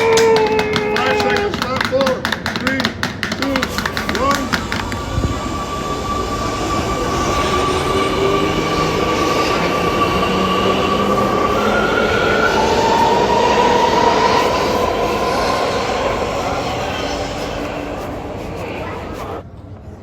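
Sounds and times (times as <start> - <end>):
high whining tones: 4.4 - 19.2.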